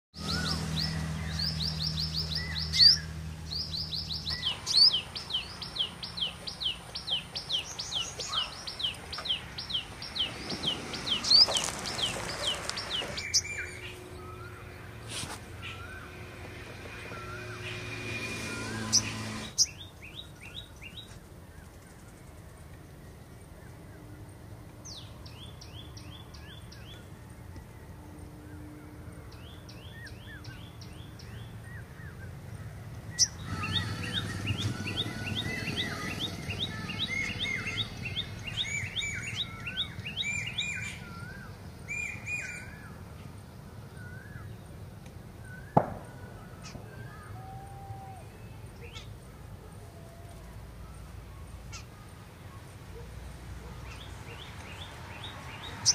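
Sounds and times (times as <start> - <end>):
small birds calling: 0.2 - 22.4, 29.7 - 44.6, 45.5 - 55.9
low rumble: 9.0 - 19.6
soft wavering whistles: 9.3 - 19.8, 33.2 - 42.8.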